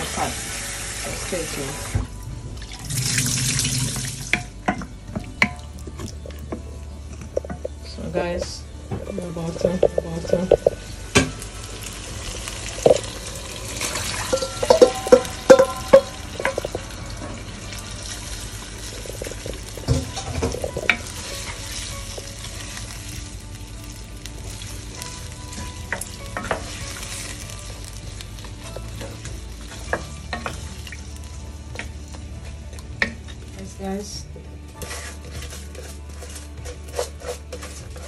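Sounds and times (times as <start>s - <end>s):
food sizzling in a pot: 0.0s - 38.0s
wooden spoon knocking pot: 8.9s - 11.4s, 12.8s - 13.1s, 14.1s - 16.9s.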